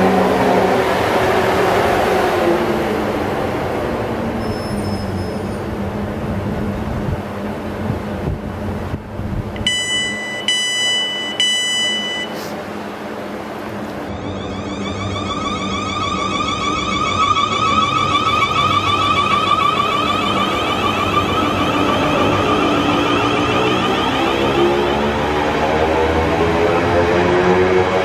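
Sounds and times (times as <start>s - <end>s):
electric train slowing to a stop: 0.0s - 28.0s
low steady train hum: 0.0s - 28.0s
door warning beeps: 9.6s - 12.5s.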